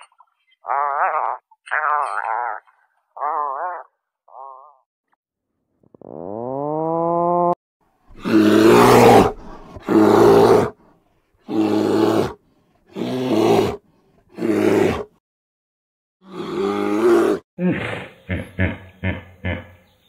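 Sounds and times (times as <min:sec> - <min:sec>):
bear harsh calls: 0:08.1 - 0:10.8.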